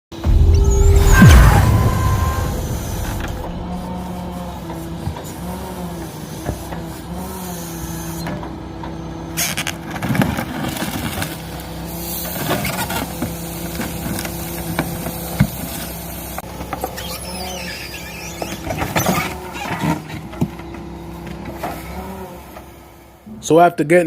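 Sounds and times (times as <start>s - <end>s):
truck engine running: 0.1s - 10.6s.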